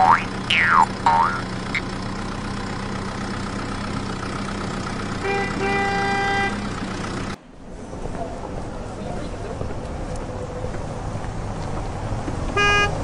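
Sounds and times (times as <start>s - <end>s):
low engine hum: 0.0s - 13.0s
vehicle horn tooting: 5.2s - 6.7s, 12.6s - 13.0s.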